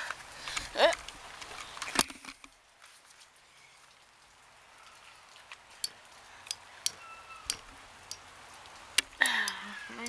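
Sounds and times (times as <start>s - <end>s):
rain falling: 0.0s - 10.0s
drips on hard surface: 3.1s - 10.0s.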